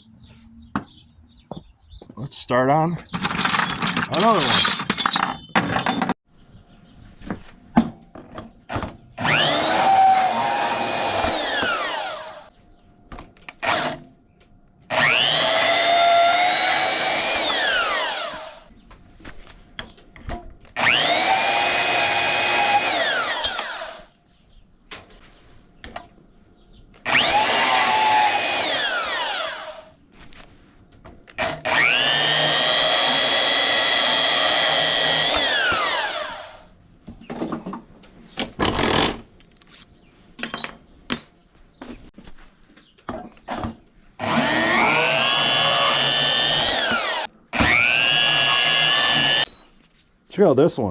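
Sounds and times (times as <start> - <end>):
bandsaw cutting metal rods: 3.0 - 6.2, 9.2 - 12.5, 14.9 - 18.6, 20.8 - 24.1, 27.1 - 29.9, 31.4 - 36.7, 44.2 - 49.5.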